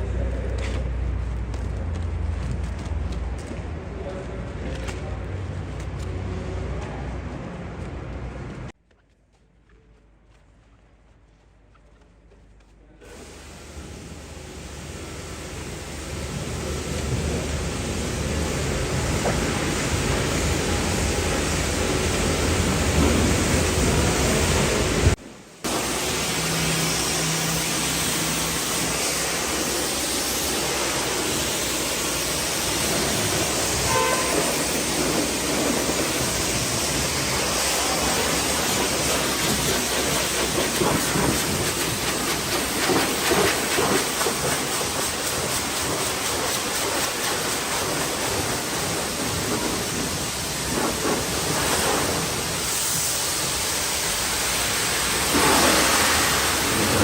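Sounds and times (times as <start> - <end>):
pressure washer spraying water: 13.1 - 57.0.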